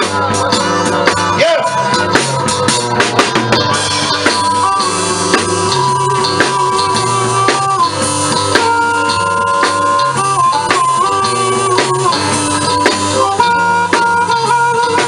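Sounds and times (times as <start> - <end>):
bending lead guitar notes: 0.0 - 15.0
drum kit strikes: 0.0 - 15.0
live blues band playing: 0.0 - 15.0.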